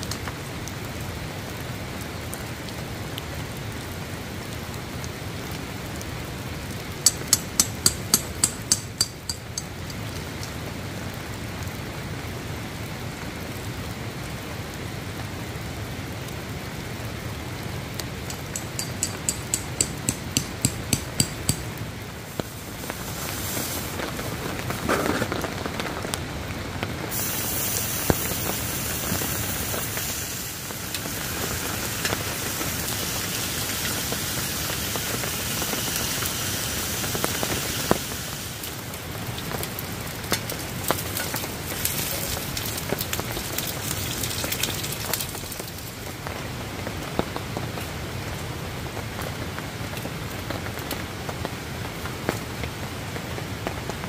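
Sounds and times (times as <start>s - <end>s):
rain pattering on a tarp: 0.0s - 54.0s
sharp ticks of drops: 7.1s - 10.0s, 18.3s - 21.8s.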